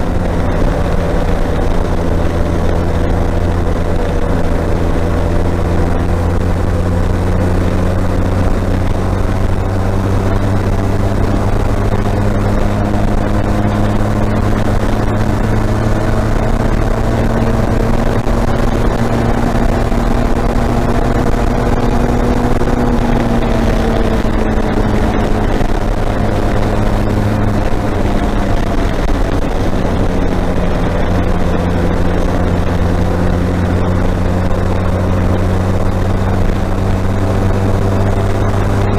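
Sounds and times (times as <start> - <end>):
motorcycle engine cruising: 0.0 - 38.9
wind and road noise: 0.0 - 38.9.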